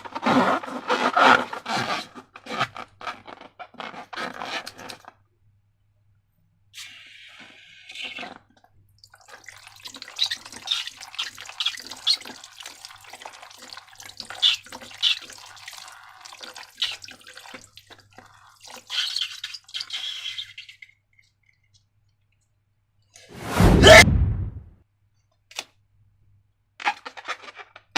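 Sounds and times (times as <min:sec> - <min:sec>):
sudden loud burst: 0:23.4 - 0:24.7.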